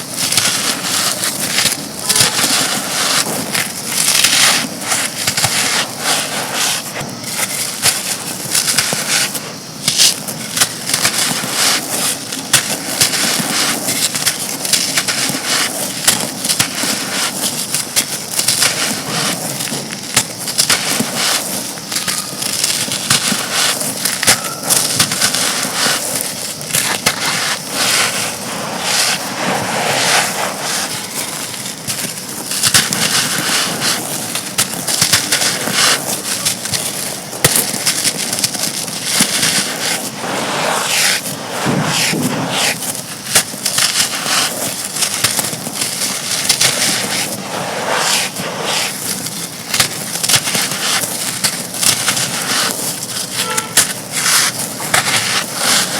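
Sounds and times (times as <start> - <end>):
brittle chunks crunching: 12.0 - 28.4, 30.8 - 40.1.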